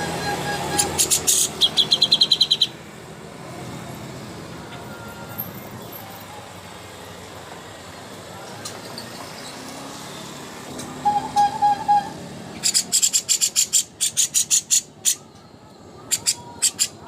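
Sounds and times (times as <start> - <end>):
bird high-pitched chirps: 0.0 - 2.8, 10.8 - 15.4, 16.0 - 17.0
songbird whistled notes: 10.8 - 15.2.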